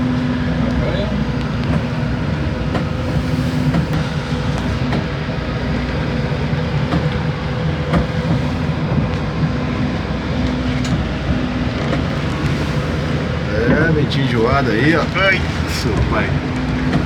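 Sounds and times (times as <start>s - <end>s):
boat engine running: 0.0s - 17.0s
water noise: 0.0s - 17.0s
wind: 0.0s - 17.0s.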